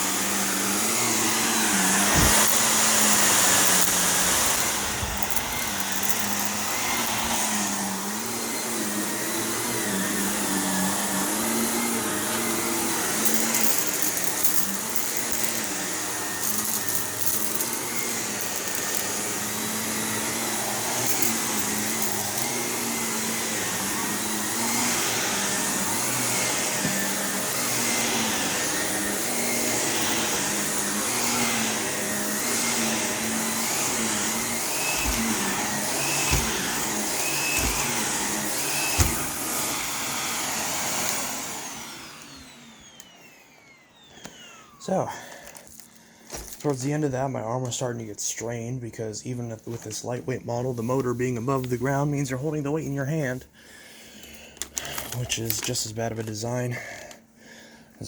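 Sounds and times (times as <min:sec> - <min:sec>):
vacuum cleaner running over carpet: 0:00.0 - 0:47.1
debris crackling in vacuum: 0:01.6 - 0:07.4.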